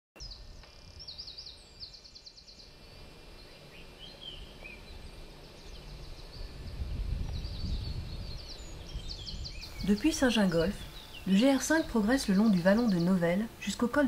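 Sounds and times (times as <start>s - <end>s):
lower bird chirps: 0.2s - 14.0s
songbirds singing: 0.2s - 14.0s.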